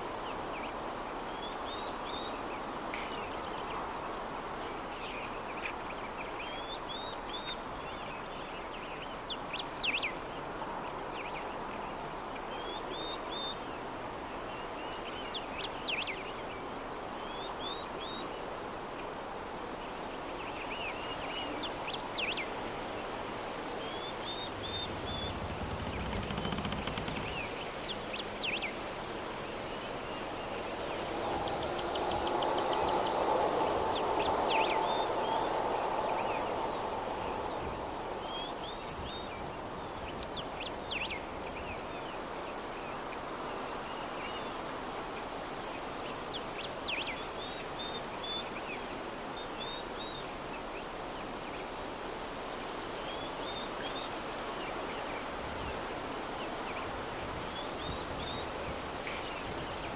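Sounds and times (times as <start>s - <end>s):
soft breeze: 0.0s - 59.9s
small birds chirping: 23.5s - 28.8s.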